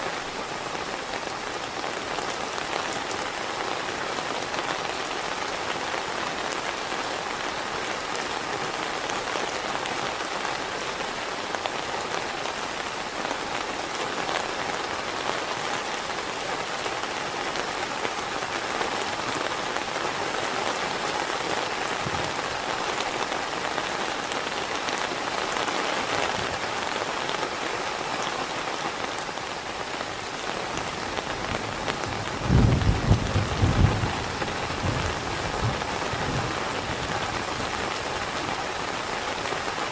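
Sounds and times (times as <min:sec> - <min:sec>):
heavy rain falling: 0:00.0 - 0:39.9
low thunder rumble: 0:32.4 - 0:36.5.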